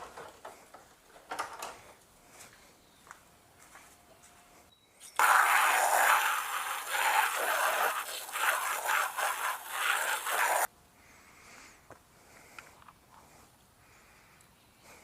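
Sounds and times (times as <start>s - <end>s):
rough scraping and rushing: 5.2s - 10.7s.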